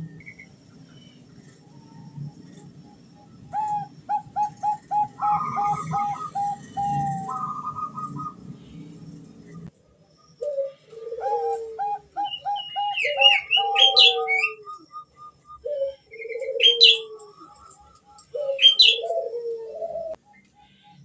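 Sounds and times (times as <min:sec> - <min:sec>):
dove cooing: 0:01.2 - 0:09.3, 0:10.2 - 0:20.2
high chirping: 0:12.0 - 0:19.1.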